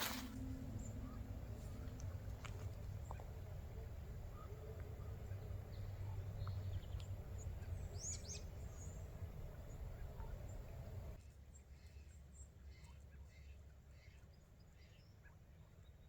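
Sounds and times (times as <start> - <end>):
low rumble: 0.0 - 11.2
small birds calling: 0.0 - 11.2.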